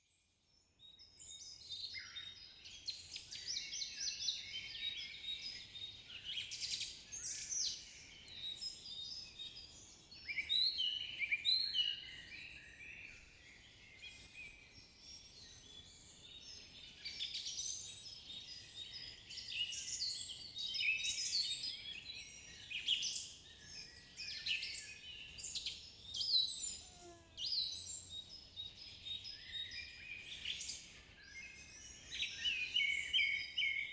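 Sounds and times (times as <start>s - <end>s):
songbirds singing and chirping: 0.0s - 33.9s.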